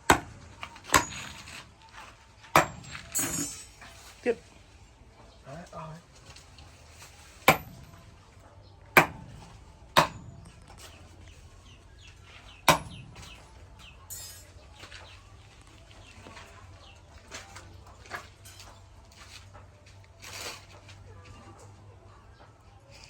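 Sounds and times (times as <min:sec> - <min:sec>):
chickens clucking: 0:20.8 - 0:23.0.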